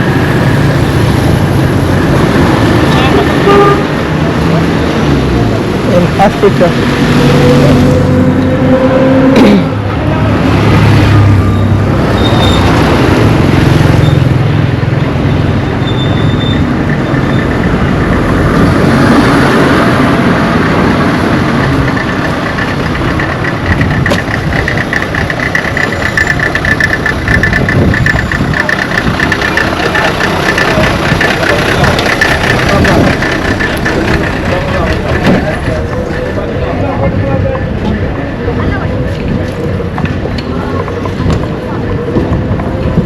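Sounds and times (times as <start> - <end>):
road noise: 0.0 - 43.0
vehicle engine running: 9.8 - 43.0
pulsing high tone: 21.6 - 36.6.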